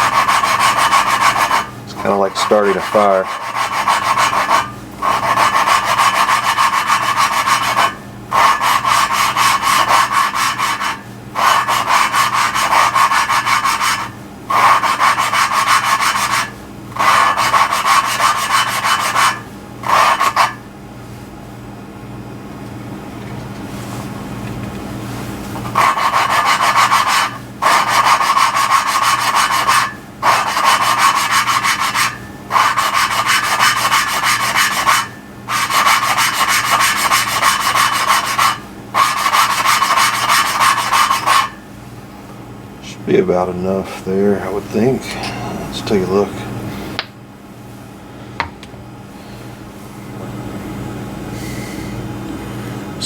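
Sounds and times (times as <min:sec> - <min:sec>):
valve lapping gritty rubbing: 0:00.0 - 0:20.6, 0:25.6 - 0:41.6.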